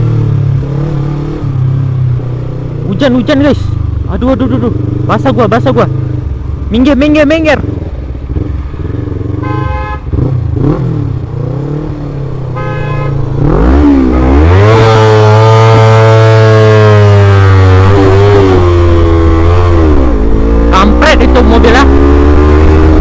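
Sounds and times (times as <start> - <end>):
motorcycle engine revving: 0.0 - 23.0
wind and road noise: 0.0 - 23.0
short horn beeps: 9.4 - 10.1, 12.6 - 13.2.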